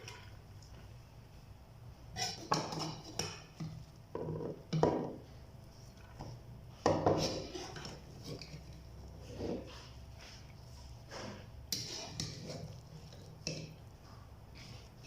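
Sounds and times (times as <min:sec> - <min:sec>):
utensil scraping cookware: 0:02.1 - 0:03.6, 0:06.9 - 0:10.4, 0:11.0 - 0:13.8.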